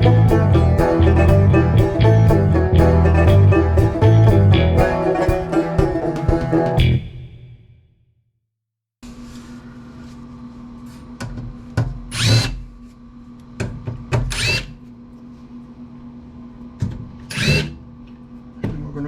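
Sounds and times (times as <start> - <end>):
low hum: 0.0 - 7.4
power drill whirring: 14.3 - 14.8, 17.3 - 17.8.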